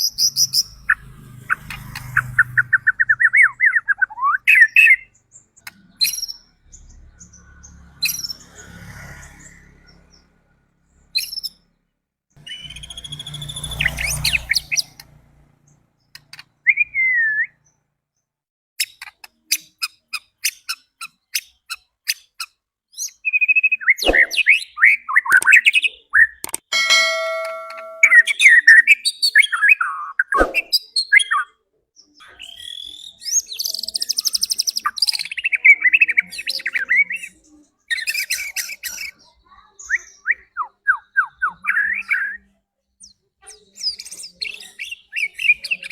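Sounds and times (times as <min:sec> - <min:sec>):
bird whistling and trilling song: 0:02.2 - 0:06.5, 0:12.4 - 0:15.0, 0:16.6 - 0:17.7, 0:22.9 - 0:31.5, 0:32.2 - 0:39.2.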